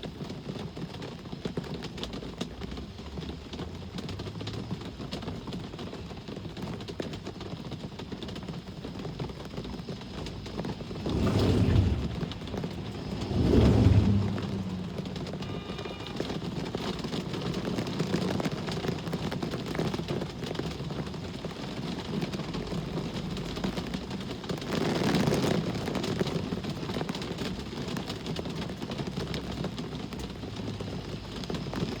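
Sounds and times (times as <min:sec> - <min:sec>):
steady rain falling: 0:00.0 - 0:32.0
vehicle passing: 0:10.4 - 0:17.0.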